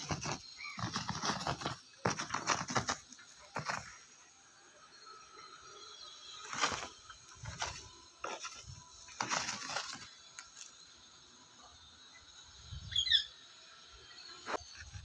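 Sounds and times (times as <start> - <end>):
parrot chirp: 12.9 - 13.4.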